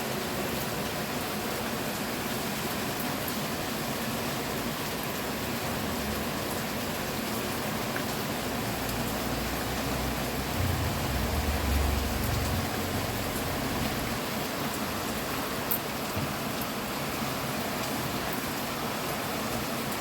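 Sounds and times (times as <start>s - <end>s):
steady rain: 0.0s - 20.0s
low rumble: 10.3s - 14.1s.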